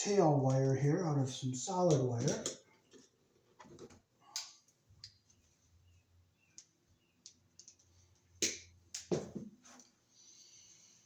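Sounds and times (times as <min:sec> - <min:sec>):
hand tools and wire clicking: 0:01.9 - 0:03.1, 0:06.5 - 0:09.1.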